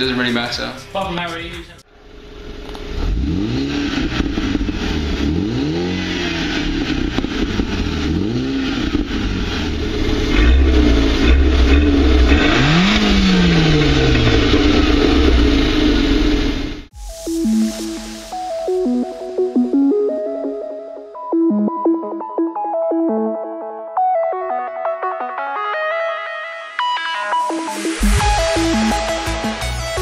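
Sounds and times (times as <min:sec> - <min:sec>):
car engine revving: 0:01.9 - 0:16.9.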